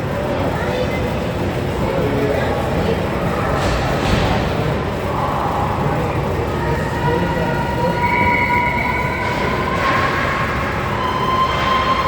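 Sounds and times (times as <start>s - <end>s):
arena crowd din: 0.0s - 12.0s.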